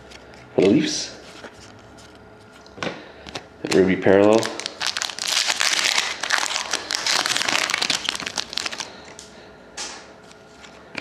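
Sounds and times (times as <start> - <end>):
plastic wrapper crinkling: 3.6 - 9.2.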